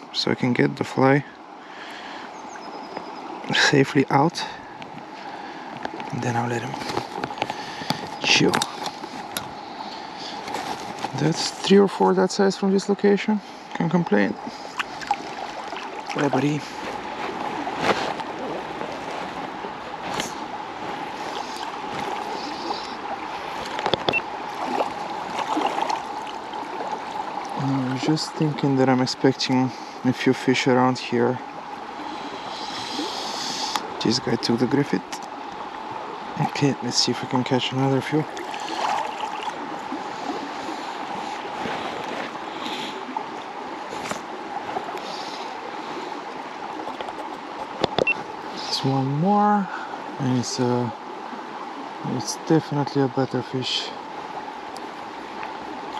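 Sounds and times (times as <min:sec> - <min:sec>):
river water burbling: 0:00.0 - 0:55.9
short knocks or splashes: 0:23.6 - 0:27.0.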